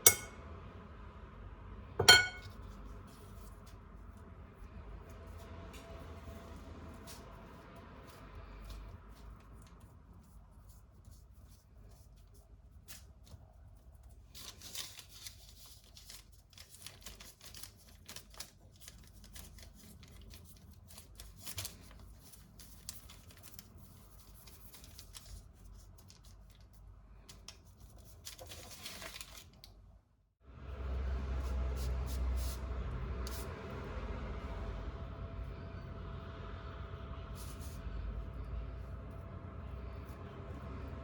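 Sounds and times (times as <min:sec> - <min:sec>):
objects being handled: 0:00.0 - 0:00.3.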